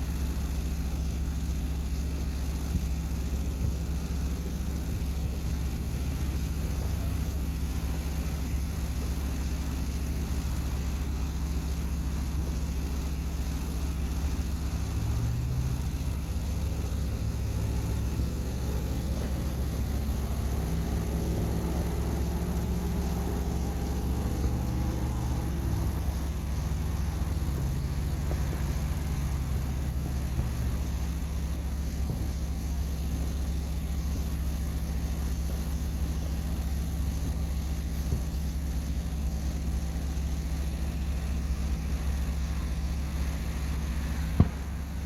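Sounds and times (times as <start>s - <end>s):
engine humming: 0.0s - 45.0s
distant firework boom: 44.3s - 45.0s.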